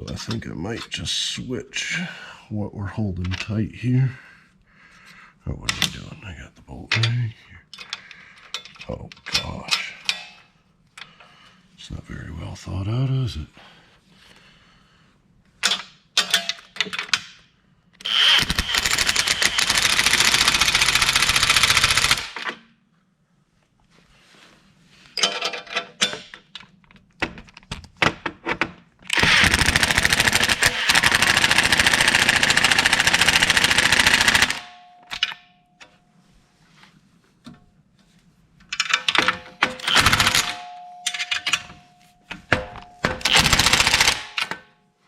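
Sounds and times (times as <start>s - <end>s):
impact driver hammering rattle: 18.1s - 22.4s, 29.1s - 35.3s, 39.1s - 41.2s, 42.5s - 44.5s
metal parts clinking: 25.2s - 26.8s, 38.7s - 44.6s.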